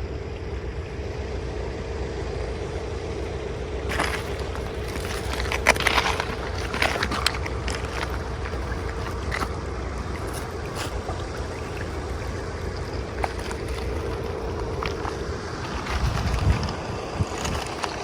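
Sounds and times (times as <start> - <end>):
tractor engine running: 0.0 - 18.0
rushing floodwater: 3.9 - 18.0.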